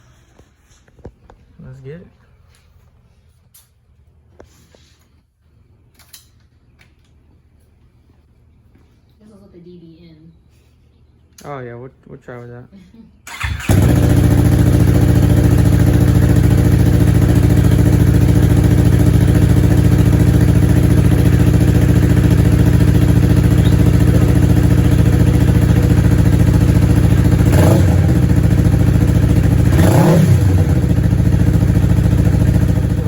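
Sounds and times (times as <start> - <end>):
motorcycle engine idling and blipping: 13.3 - 33.0.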